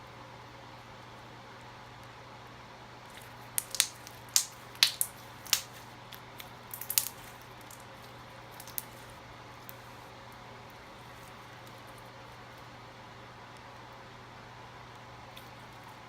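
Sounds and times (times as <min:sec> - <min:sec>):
slime squished by hand: 0:03.1 - 0:09.9
sharp clicks and pops: 0:03.6 - 0:07.8.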